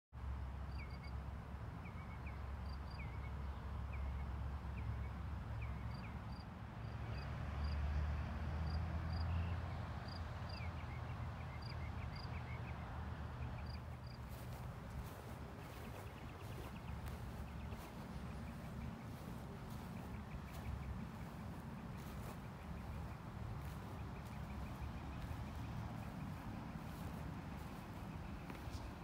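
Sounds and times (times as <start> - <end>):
small birds chirping: 13.4 - 29.0
steady low rumble: 14.0 - 29.0.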